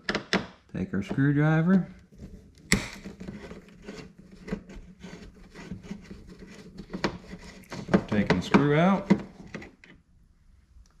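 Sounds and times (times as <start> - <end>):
screwdriver scraping on plastic: 2.0 - 10.0.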